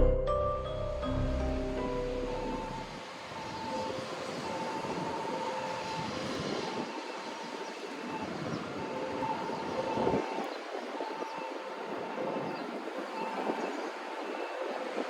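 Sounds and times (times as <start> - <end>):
faint high tone: 0.0 - 2.9
train rumbling: 0.7 - 9.3.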